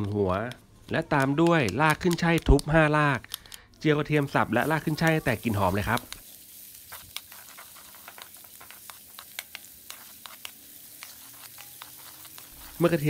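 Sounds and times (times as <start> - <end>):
oil crackling and popping: 0.0 - 13.0
food sizzling in hot oil: 4.0 - 13.0
wooden spatula stirring: 4.1 - 13.0.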